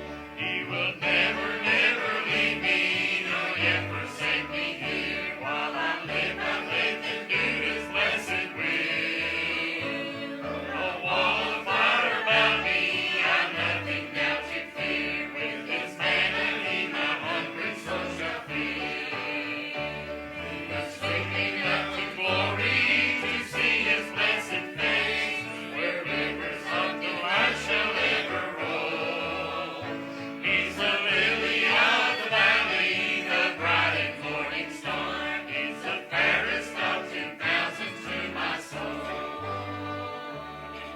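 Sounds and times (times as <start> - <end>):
choir singing a hymn: 0.0 - 40.9
instrumental accompaniment with bass: 0.0 - 40.9.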